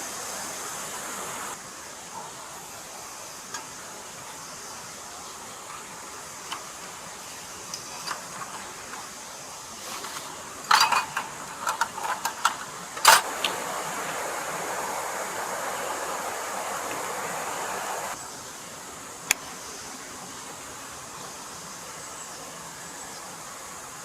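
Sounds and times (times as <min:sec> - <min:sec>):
running stream water: 0:00.0 - 0:24.0.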